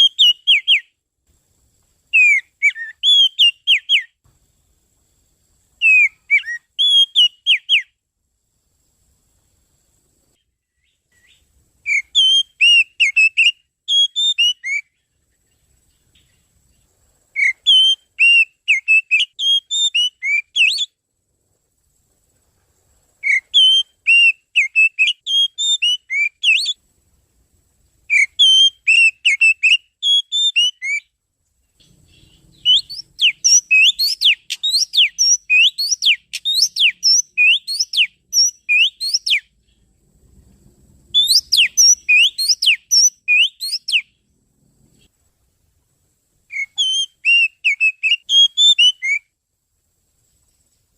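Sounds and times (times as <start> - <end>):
magpie-robin whistled song: 0.0 - 1.0, 2.1 - 4.2, 5.8 - 8.0, 10.7 - 15.1, 17.3 - 21.0, 23.2 - 26.8, 28.1 - 31.1, 31.8 - 39.8, 41.1 - 44.2, 46.5 - 49.3.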